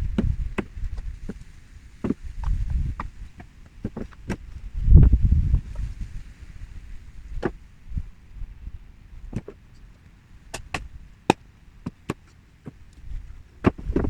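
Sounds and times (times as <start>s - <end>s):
wind rumble on microphone: 0.0s - 9.7s, 10.4s - 11.2s, 12.8s - 14.0s.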